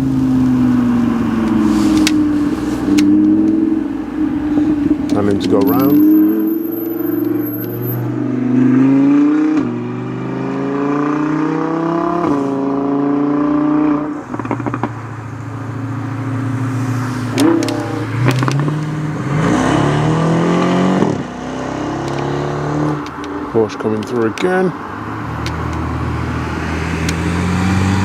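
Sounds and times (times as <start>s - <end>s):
sports car engine revving hard: 0.0s - 23.1s, 25.5s - 28.0s
exhaust cracks: 16.9s - 19.2s.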